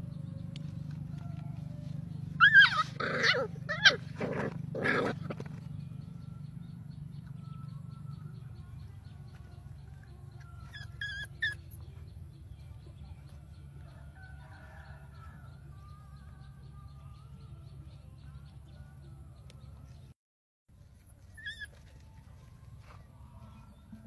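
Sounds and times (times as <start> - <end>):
faint animal calls: 1.0 - 5.2
high-pitched animal cries: 2.4 - 4.1.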